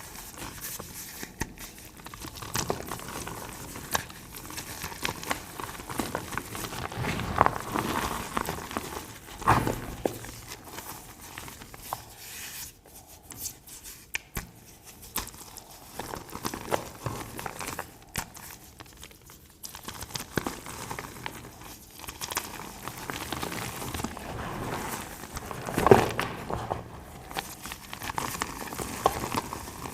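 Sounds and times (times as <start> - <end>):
chalk crunching and crumbling: 0.2 - 14.0, 19.8 - 29.9.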